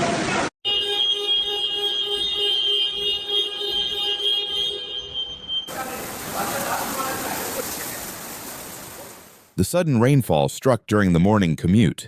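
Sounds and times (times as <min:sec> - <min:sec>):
high-pitched electronic alarm tone: 0:00.6 - 0:05.7
lower pulsing alarm tone: 0:00.6 - 0:05.7.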